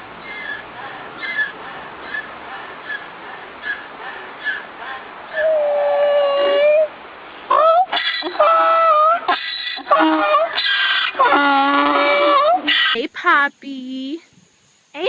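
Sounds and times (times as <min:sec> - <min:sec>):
animal chirping and calling: 0:07.5 - 0:13.0.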